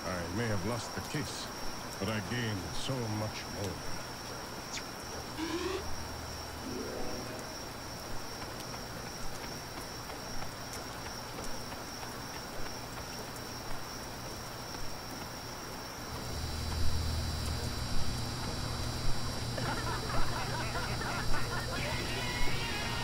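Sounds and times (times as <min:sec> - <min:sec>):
crickets trilling: 0:00.0 - 0:23.0
rain hiss: 0:00.0 - 0:23.0
short low tones: 0:05.4 - 0:08.0
faint ticks: 0:08.2 - 0:15.5, 0:16.1 - 0:19.4.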